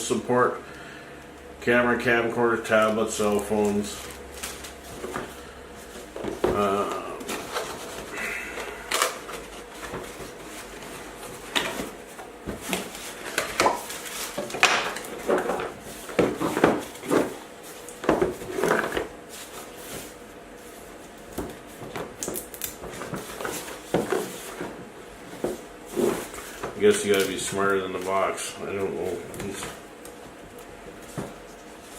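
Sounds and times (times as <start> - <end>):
box knocks and scrapes: 11.3 - 17.4.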